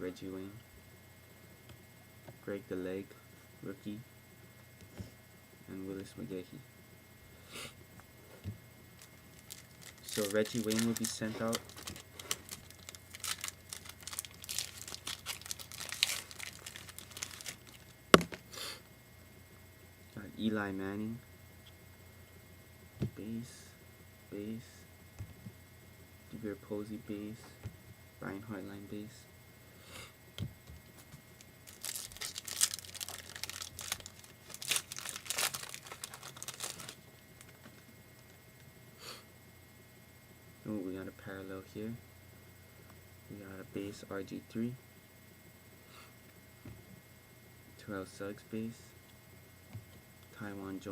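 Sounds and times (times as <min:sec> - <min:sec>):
card pack wrapper crinkling: 0:09.0 - 0:18.4, 0:31.4 - 0:37.8.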